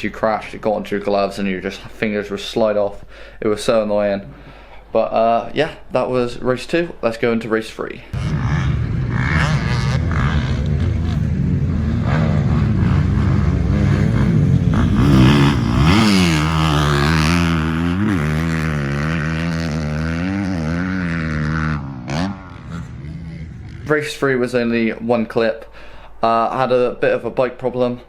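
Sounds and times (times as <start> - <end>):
motocross bike engine running hard: 8.2 - 23.9.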